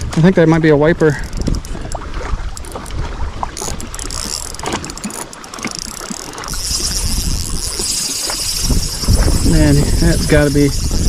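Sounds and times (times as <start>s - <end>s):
fishing reel drag buzzing: 1.1s - 1.8s, 3.5s - 11.0s.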